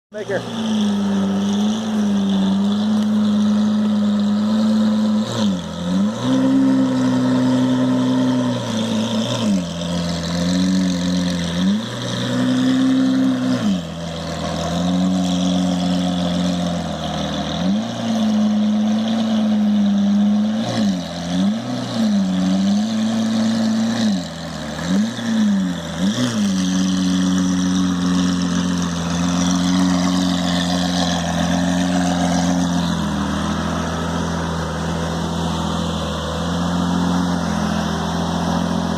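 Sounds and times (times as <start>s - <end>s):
car engine exhaust at low speed: 0.1s - 38.9s.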